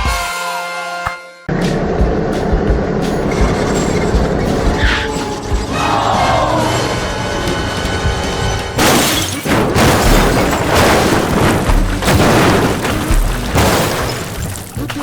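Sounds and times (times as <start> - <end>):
background music: 0.0 - 10.7
crashing and booming effects: 1.8 - 14.8.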